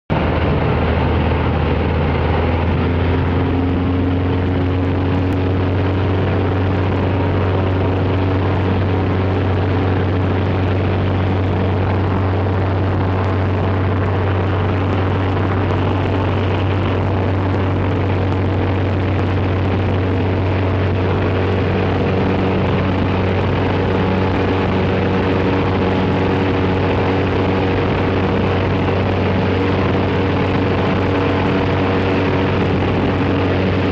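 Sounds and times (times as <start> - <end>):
airplane engine and propeller: 0.1 - 33.9.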